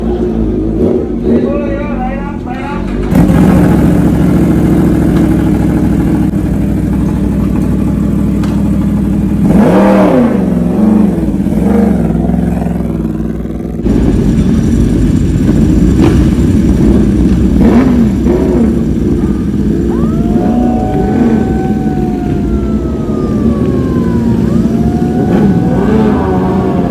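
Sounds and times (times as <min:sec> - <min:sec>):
motorcycle engine idling and revving: 0:00.0 - 0:26.9.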